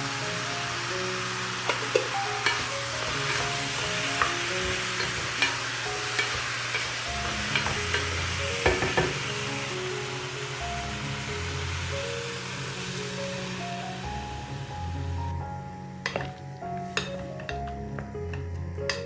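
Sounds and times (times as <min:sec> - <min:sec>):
food sizzling in a pan: 0:00.0 - 0:19.0
utensil tapping against a pan: 0:04.1 - 0:09.2, 0:16.1 - 0:19.0.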